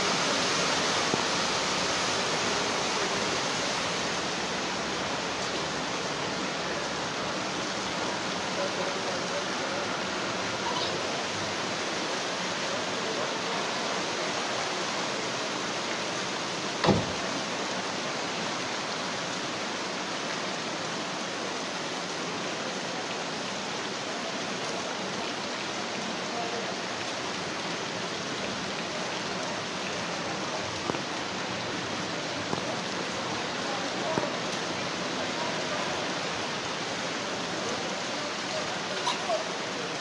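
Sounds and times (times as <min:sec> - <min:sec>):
heavy rain hissing: 0:00.0 - 0:40.0
water running over street: 0:00.0 - 0:40.0
sharp thump: 0:16.8 - 0:17.2.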